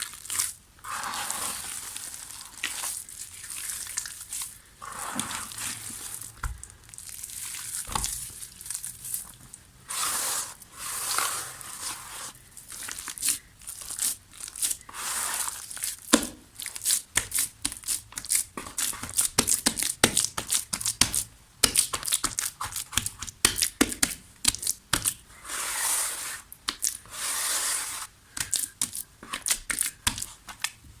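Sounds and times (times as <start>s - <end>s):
dried mud crumbling: 0.0s - 9.6s.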